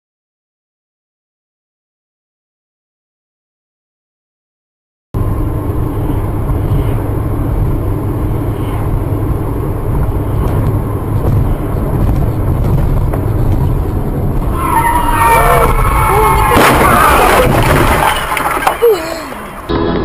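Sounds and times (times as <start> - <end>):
car engine: 5.2 - 20.0
road noise inside car: 5.2 - 20.0.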